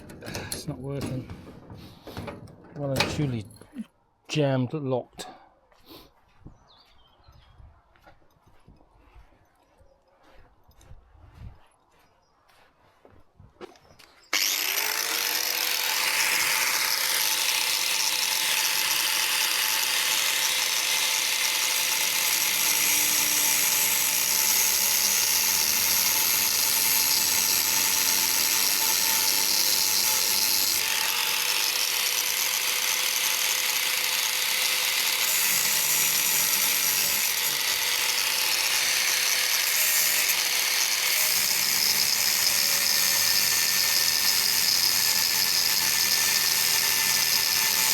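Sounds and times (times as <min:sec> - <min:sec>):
angle grinder grinding metal: 0:14.3 - 0:47.9.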